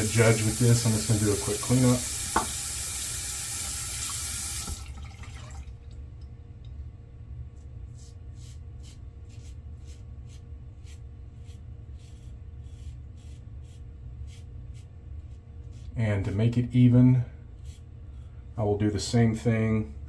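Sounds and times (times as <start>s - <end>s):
razor scratching stubble: 0.0s - 4.0s
faucet running into sink: 0.0s - 5.9s.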